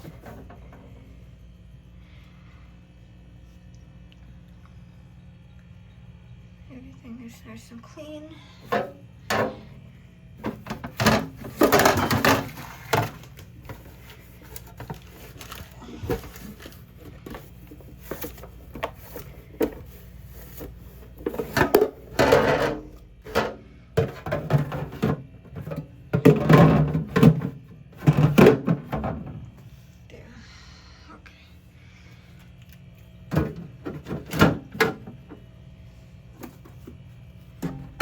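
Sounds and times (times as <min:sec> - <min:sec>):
objects knocking when set down: 0:10.4 - 0:17.5
scraping and rustling: 0:10.4 - 0:22.9.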